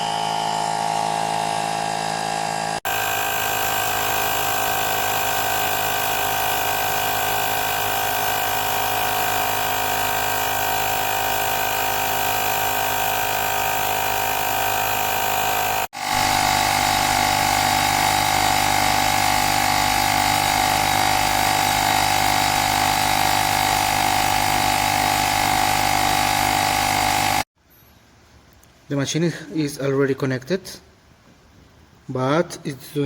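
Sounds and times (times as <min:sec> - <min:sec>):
tyre pump compressor whining: 0:00.0 - 0:27.5.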